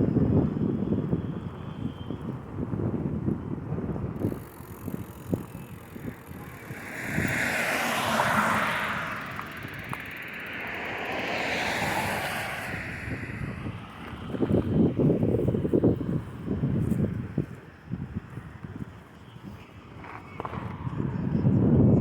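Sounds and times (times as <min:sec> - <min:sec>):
vehicle passing by: 0:04.2 - 0:16.7.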